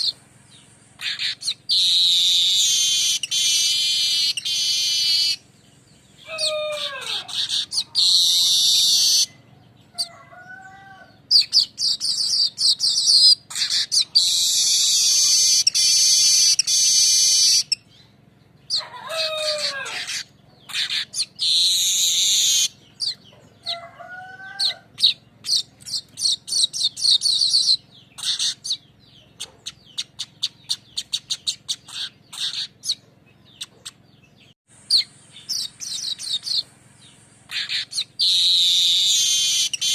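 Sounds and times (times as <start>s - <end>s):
bird buzzy rattling trills: 0.0s - 39.9s
lower falling bird calls: 0.0s - 39.9s.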